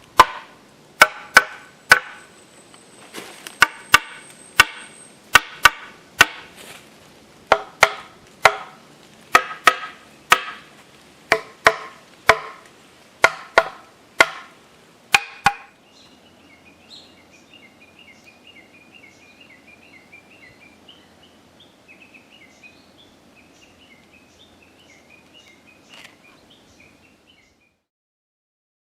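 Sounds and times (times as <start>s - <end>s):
hammer knocking on logs: 0.2s - 2.2s, 3.6s - 6.5s, 7.5s - 10.7s, 11.3s - 12.6s, 13.2s - 14.5s, 15.1s - 15.7s.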